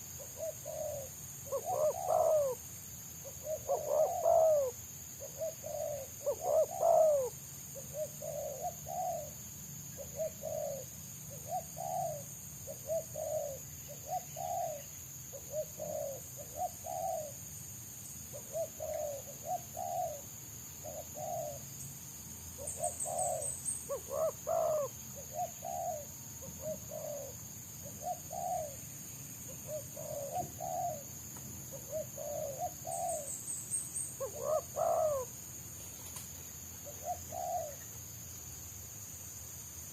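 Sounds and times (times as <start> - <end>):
doves cooing: 0.0 - 2.6, 3.2 - 9.4, 10.0 - 17.4, 18.3 - 21.6, 22.6 - 28.8, 29.5 - 33.3, 34.2 - 35.3, 36.8 - 37.8.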